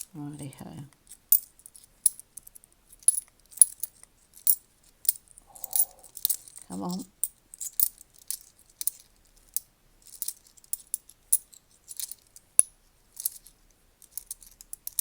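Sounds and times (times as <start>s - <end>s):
coins clinking: 3.1s - 9.0s.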